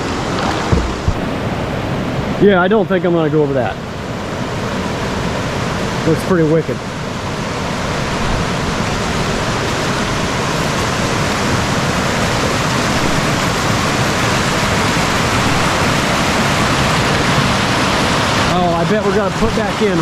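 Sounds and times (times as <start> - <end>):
river water rushing over dam: 0.0 - 20.0.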